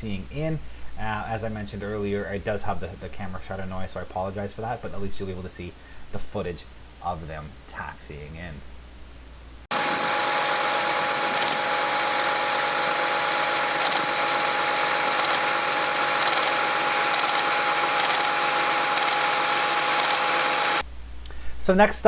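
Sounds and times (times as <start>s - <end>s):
propeller aircraft engines droning: 9.7s - 20.8s
camera shutter clicks: 11.3s - 11.6s, 13.8s - 14.1s, 15.2s - 15.5s, 16.1s - 19.3s, 20.0s - 20.3s.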